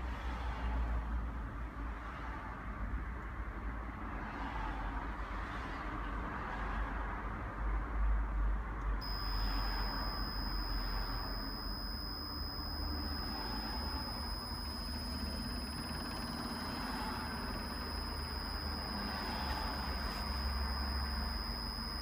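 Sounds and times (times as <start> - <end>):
air conditioner unit humming: 9.0 - 22.0
thin high-pitched tone: 9.0 - 22.0.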